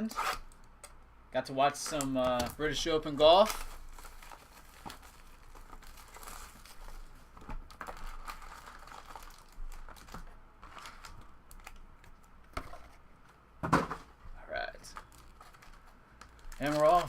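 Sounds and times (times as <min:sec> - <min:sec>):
plastic wrapping crinkling and tearing: 0:01.8 - 0:12.9, 0:14.8 - 0:17.0.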